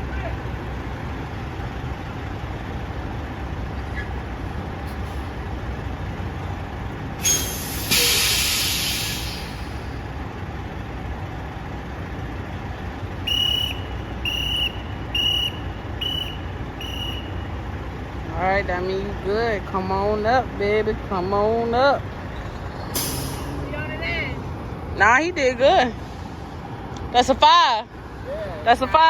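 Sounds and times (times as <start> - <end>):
diesel truck engine running: 0.0 - 29.0
air brake hiss: 7.2 - 10.0, 22.9 - 23.6
truck backup alarm beeping: 7.2 - 10.0, 13.1 - 17.9.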